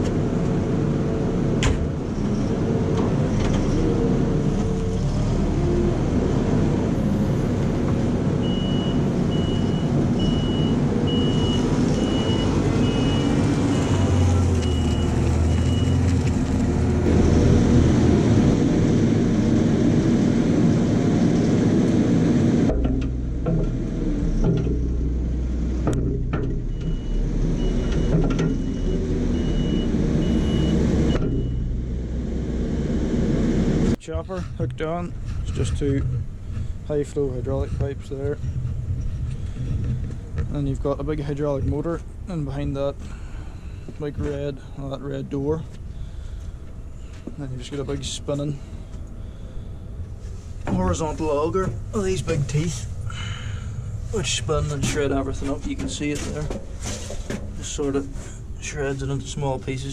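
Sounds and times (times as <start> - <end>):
diesel engine running: 0.0 - 59.9
reversing alarm beeping: 8.4 - 16.1, 26.6 - 31.8.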